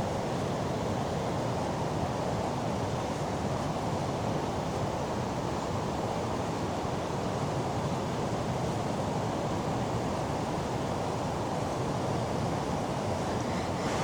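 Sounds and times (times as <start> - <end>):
waterfall rushing: 13.0 - 14.0.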